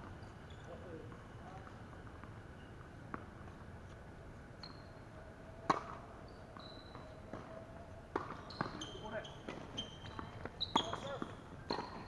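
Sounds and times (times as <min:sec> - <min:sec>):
faint high squeaks: 0:00.2 - 0:01.0, 0:04.6 - 0:05.2, 0:06.2 - 0:07.6, 0:08.4 - 0:12.0
tennis ball struck by racket: 0:05.7 - 0:06.0.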